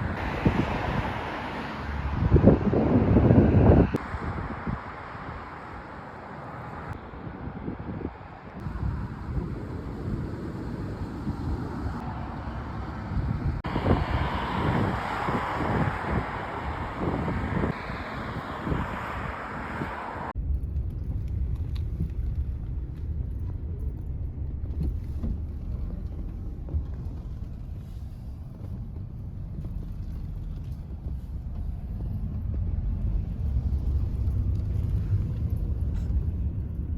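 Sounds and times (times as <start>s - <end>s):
low steady rumble: 20.3s - 36.9s.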